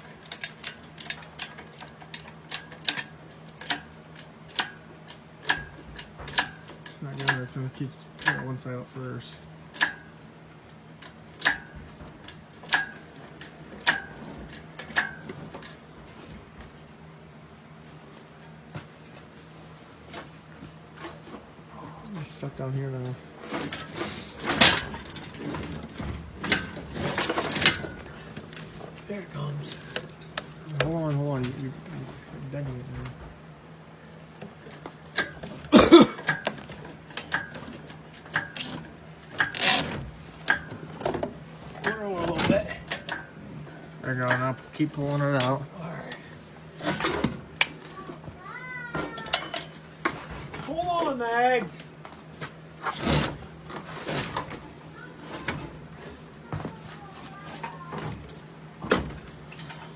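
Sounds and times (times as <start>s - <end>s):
metal rigging clicking and clanking: 0.0s - 10.2s, 10.8s - 15.8s, 23.4s - 31.6s, 34.4s - 45.6s, 49.1s - 52.2s, 52.8s - 56.3s
engine hoist ratchet clicks: 36.2s - 40.7s
metal creak: 36.2s - 40.7s, 52.8s - 56.2s.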